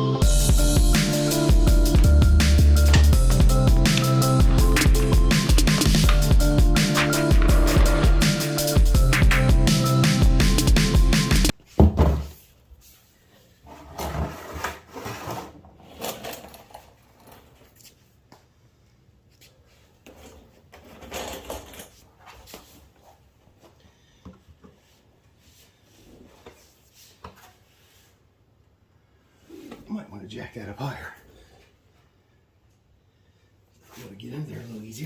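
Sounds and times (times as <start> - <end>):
tools clunking and scraping: 1.0 - 9.4.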